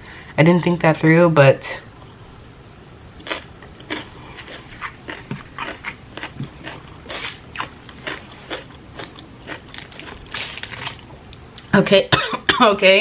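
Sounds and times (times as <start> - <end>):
person chewing crunchy food: 3.2 - 11.6.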